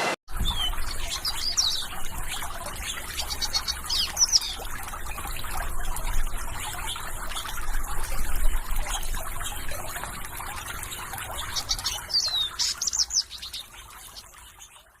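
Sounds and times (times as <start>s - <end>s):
birds chirping: 0.0s - 5.6s, 8.8s - 15.0s
water flowing and trickling: 0.3s - 15.0s.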